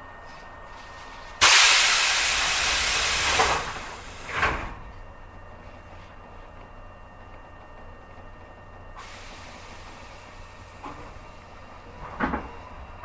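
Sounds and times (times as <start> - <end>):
train compressed air hiss: 1.4 - 4.5, 9.0 - 12.0.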